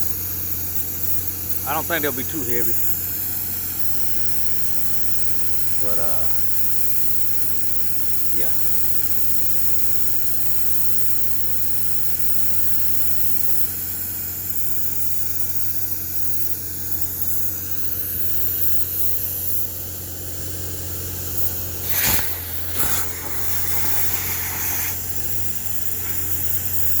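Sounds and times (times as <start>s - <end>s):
steady hiss: 0.0s - 9.5s, 20.3s - 27.0s
engine running: 20.4s - 27.0s.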